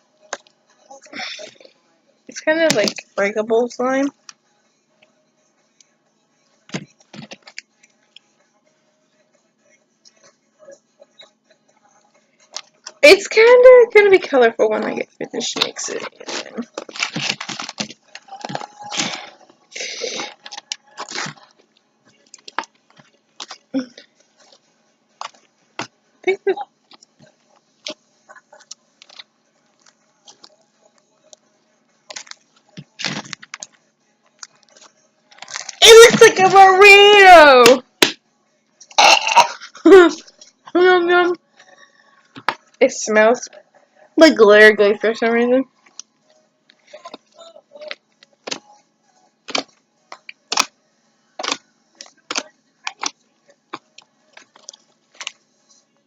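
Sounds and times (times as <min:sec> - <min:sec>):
hands squishing slime: 0:51.4 - 0:55.4.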